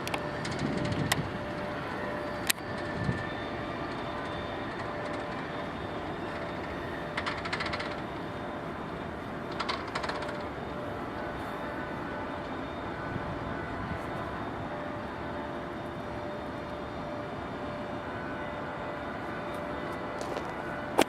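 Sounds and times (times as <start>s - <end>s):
wheels clicking over rail joints: 0.0s - 1.6s, 3.9s - 5.7s, 6.3s - 8.2s, 9.5s - 10.6s.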